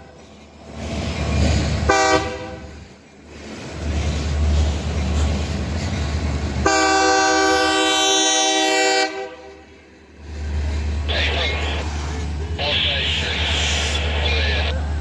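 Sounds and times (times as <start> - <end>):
diesel locomotive rumbling: 0.0 - 15.0
locomotive air horn blast: 1.9 - 2.7, 6.6 - 9.5.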